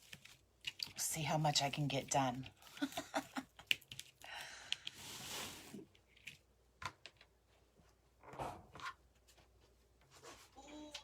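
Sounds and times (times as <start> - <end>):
rustling of materials: 0.0 - 4.2, 4.8 - 11.0.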